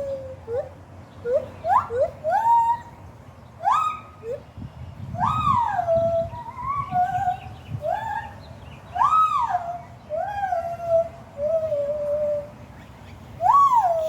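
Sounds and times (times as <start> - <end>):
gibbons whooping: 0.0 - 2.9, 3.6 - 4.5, 5.2 - 12.5, 13.4 - 14.0.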